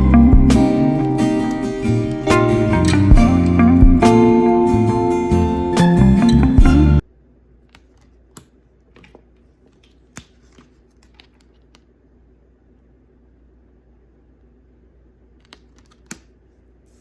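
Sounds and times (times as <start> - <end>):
background music: 0.0 - 7.0
cards clicking and flipping: 7.7 - 11.9, 15.4 - 16.4.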